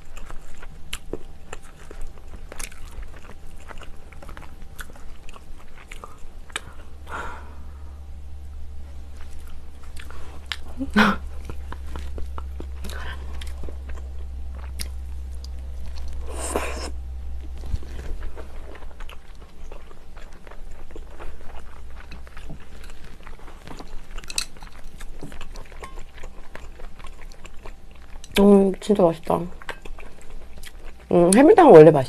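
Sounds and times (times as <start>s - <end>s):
chewing food with mouth clicks: 0.0s - 7.1s, 9.0s - 31.6s.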